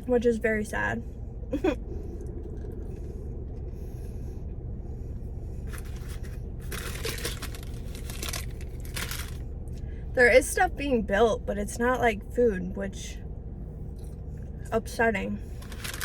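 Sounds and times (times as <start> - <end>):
steady low hum: 0.0 - 16.0
paper packaging rustling: 5.7 - 9.4, 15.6 - 16.0.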